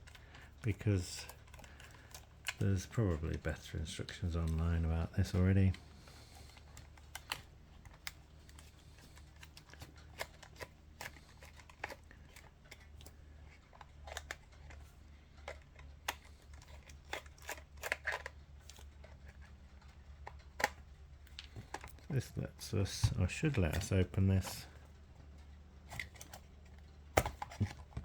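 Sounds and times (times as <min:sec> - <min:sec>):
faint low hum: 0:00.0 - 0:28.0
small clicks of camera parts: 0:06.0 - 0:22.0.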